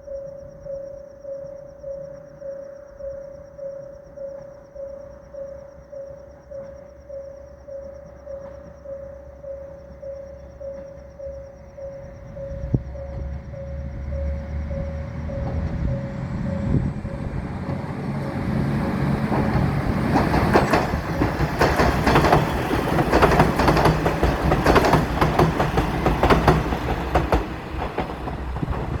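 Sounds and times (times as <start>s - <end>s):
train engine drone: 3.0s - 29.0s
wheels clacking over rail joints: 12.7s - 29.0s.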